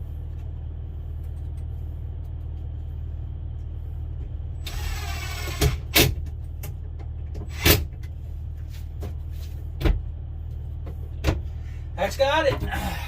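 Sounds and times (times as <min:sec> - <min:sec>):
steady low hum: 0:00.0 - 0:13.0
power drill whirring: 0:04.6 - 0:05.9.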